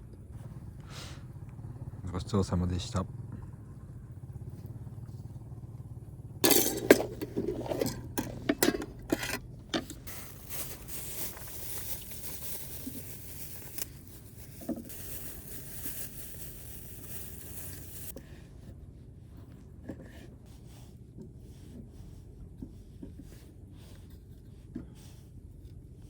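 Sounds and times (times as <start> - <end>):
dishes clinking and clattering: 6.4 - 10.0
steady hiss: 10.1 - 18.1.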